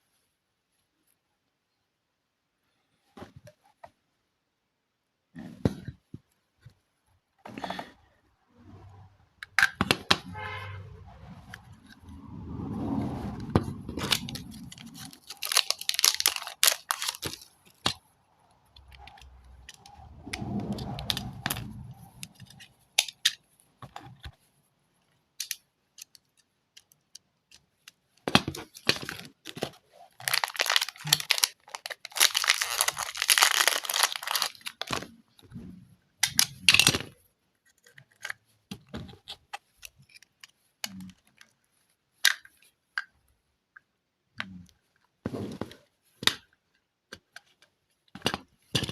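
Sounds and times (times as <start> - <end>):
plastic and paper crinkling: 13.4 - 18.0, 28.0 - 35.2
small clicks and knocks: 25.0 - 29.8.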